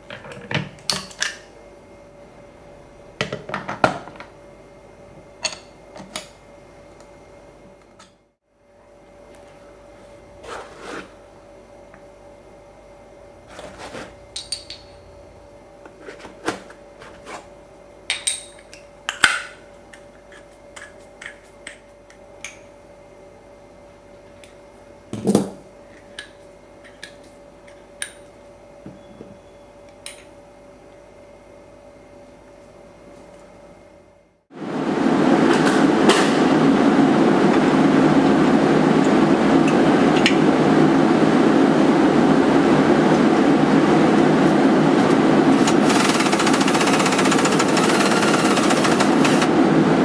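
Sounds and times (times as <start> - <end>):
machine hum: 0.0 - 18.1, 28.4 - 50.0.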